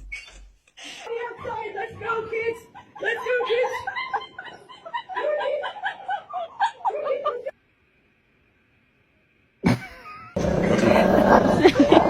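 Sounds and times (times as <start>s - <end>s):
high-pitched laughter and giggling: 2.7s - 7.5s.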